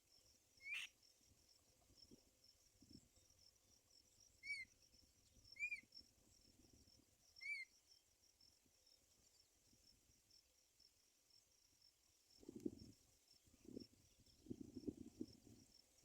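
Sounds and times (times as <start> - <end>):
crickets chirring: 0.0 - 16.0
bird chirps: 0.6 - 0.9, 4.4 - 5.9, 7.4 - 7.7.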